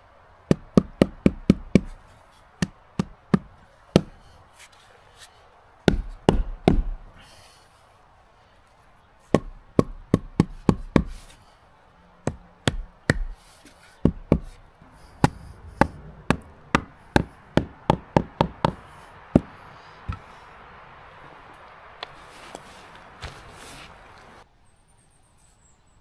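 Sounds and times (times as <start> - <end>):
tool striking wood: 5.9 - 7.0, 9.3 - 11.2, 12.2 - 13.4, 14.0 - 14.6, 15.2 - 20.2.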